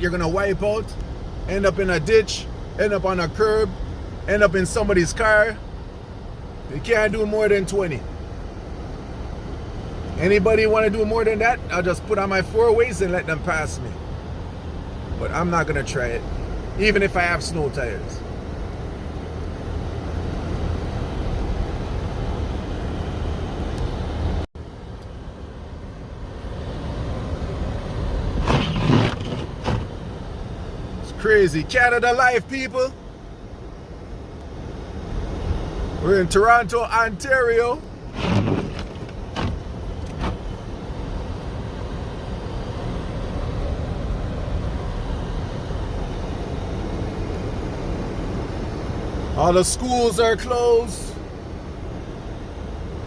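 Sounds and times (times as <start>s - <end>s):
car rumbling on snowy road: 0.0s - 32.9s, 34.7s - 53.0s
tyres on snow: 27.4s - 30.1s, 37.6s - 40.6s.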